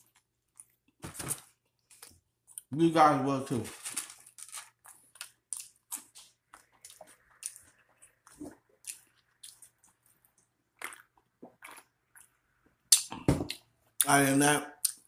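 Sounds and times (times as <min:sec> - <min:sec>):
person chewing crunchy food: 0:04.2 - 0:13.7.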